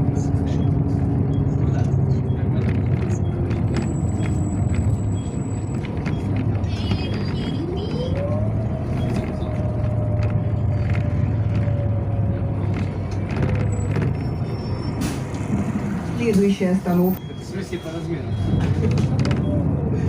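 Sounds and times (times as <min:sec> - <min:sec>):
bus drivetrain drone: 0:00.0 - 0:20.0
bus whine rising in pitch: 0:07.1 - 0:20.0.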